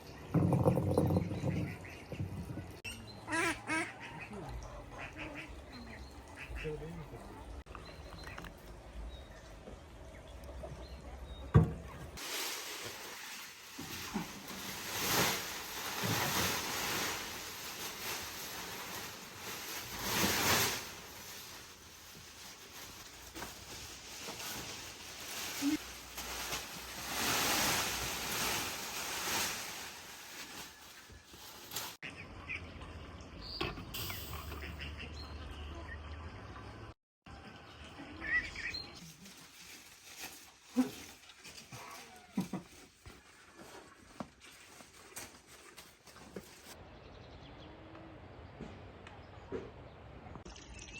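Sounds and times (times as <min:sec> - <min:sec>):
birds chirping: 0:00.0 - 0:12.2.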